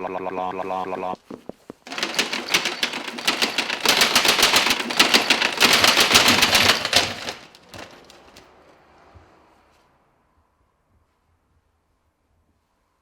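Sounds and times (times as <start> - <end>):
rapid clacking: 1.9 - 8.5.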